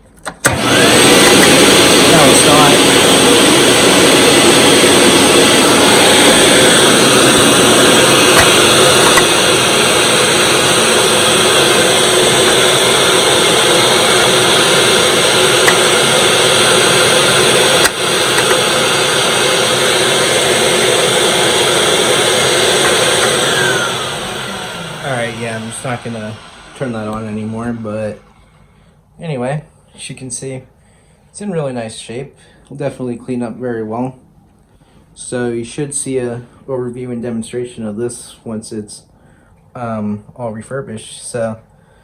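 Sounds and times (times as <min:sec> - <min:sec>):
upright vacuum cleaner running: 0:00.3 - 0:28.9.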